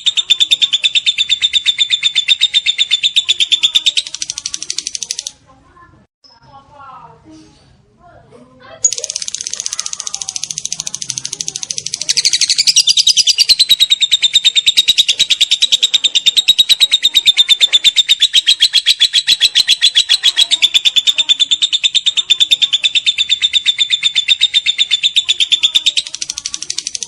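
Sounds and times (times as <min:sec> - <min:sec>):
lovebird shrill chatter: 0:08.8 - 0:27.0.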